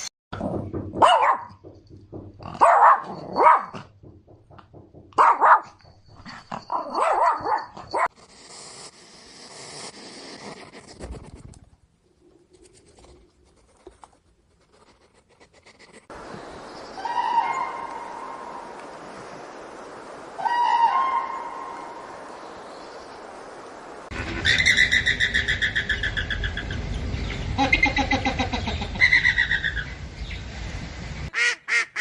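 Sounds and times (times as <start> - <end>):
animal calling: 17.0 - 18.6, 20.4 - 22.0.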